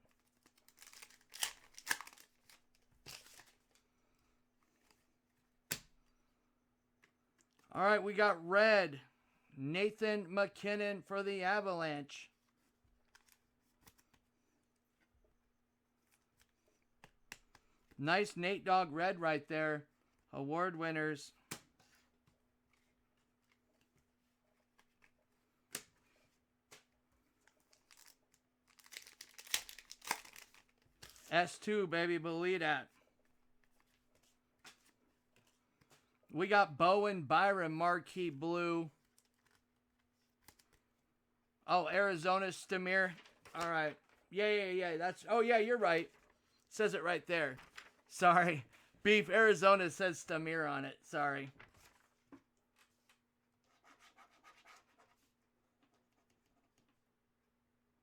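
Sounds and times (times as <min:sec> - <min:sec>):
wrapper tearing and crinkling: 0:00.4 - 0:03.6, 0:27.8 - 0:31.3.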